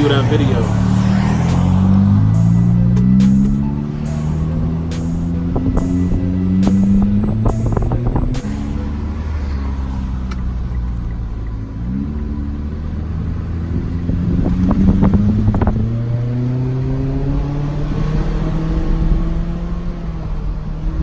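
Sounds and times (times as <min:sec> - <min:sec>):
car engine accelerating: 0:00.0 - 0:21.0
sharp clicks: 0:01.4 - 0:03.8.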